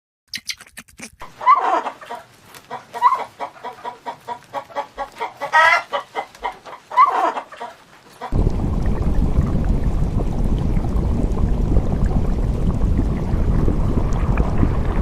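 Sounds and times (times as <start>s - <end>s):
chickens clucking: 1.2s - 8.4s.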